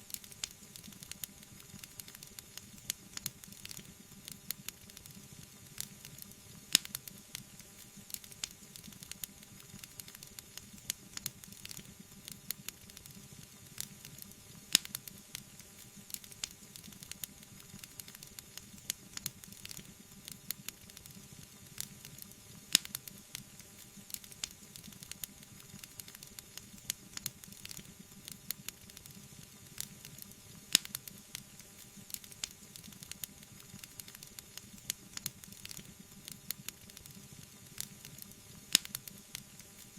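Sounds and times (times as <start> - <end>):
wood fire crackling: 0.1 - 39.9
sharp fire pops: 30.7 - 31.2, 37.8 - 39.2.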